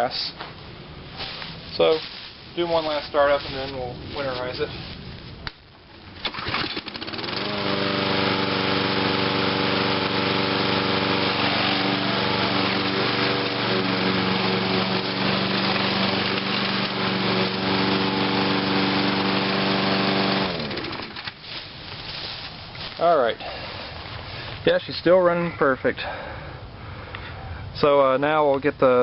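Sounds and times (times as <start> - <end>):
lawn mower engine running: 6.1 - 23.7.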